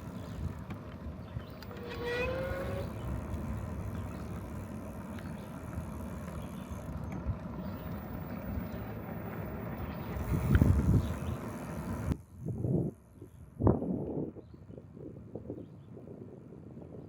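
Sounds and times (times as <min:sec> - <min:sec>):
low bumps: 0:00.0 - 0:12.2
wind rumbling on microphone: 0:00.0 - 0:17.0.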